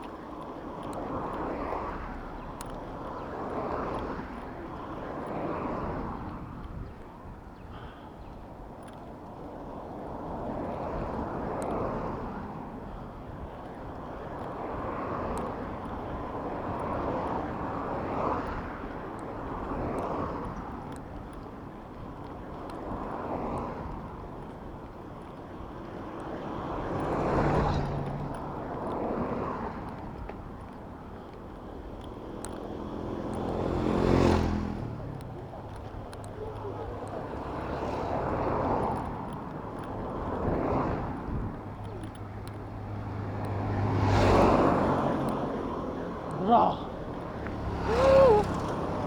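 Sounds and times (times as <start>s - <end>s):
vehicles passing by: 0.0s - 49.0s
wind on microphone: 47.0s - 49.0s.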